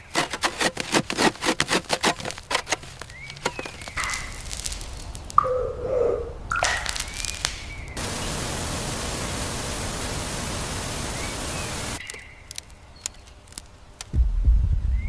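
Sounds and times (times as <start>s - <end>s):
steady hiss: 2.8s - 5.4s, 6.4s - 14.8s
sharp clicks: 6.5s - 8.0s, 12.0s - 14.2s
heavy low thump and rumble: 14.1s - 15.0s.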